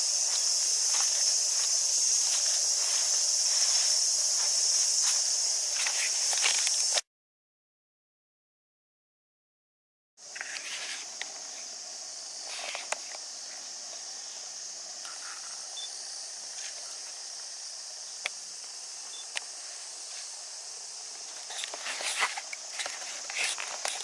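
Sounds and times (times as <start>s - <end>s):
cicadas chorus: 0.0s - 7.0s, 10.2s - 24.0s
footsteps: 0.0s - 7.0s, 21.2s - 24.0s
rustling: 21.2s - 24.0s.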